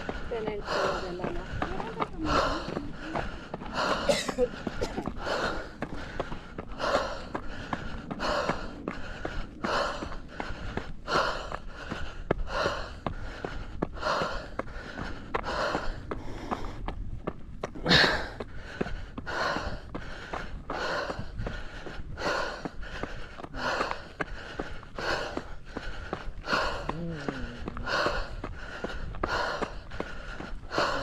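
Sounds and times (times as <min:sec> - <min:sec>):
faint footsteps: 0:00.0 - 0:31.0
heavy breathing of runner: 0:00.0 - 0:31.0.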